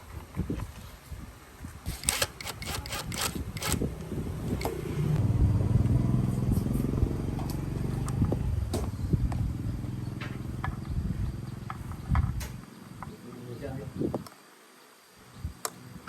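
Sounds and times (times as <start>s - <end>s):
sharp clicks and rattles: 1.9s - 3.9s.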